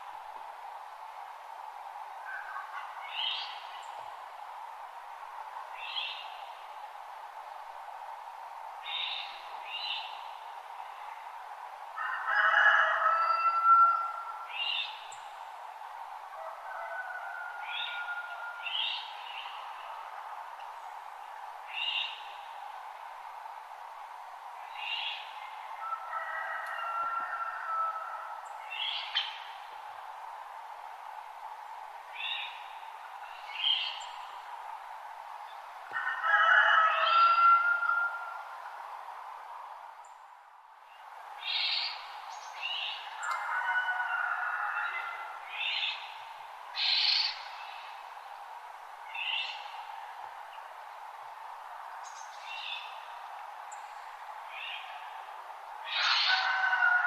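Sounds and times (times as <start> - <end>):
steady background hiss: 0.0 - 57.0
wild birds calling: 52.0 - 57.0.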